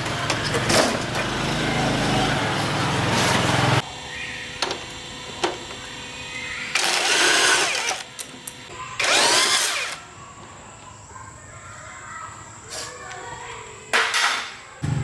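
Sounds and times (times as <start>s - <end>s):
power drill bursts: 6.7s - 8.2s, 8.9s - 10.0s.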